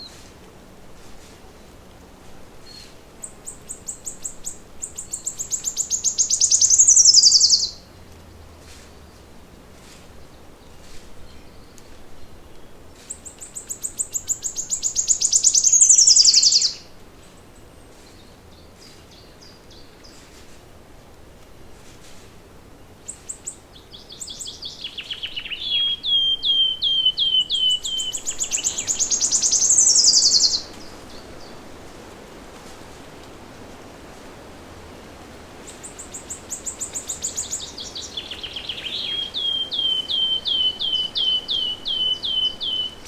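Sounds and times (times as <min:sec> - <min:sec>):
songbird trilling song: 0:02.6 - 0:07.9, 0:10.2 - 0:20.2, 0:22.9 - 0:31.6, 0:35.6 - 0:43.0.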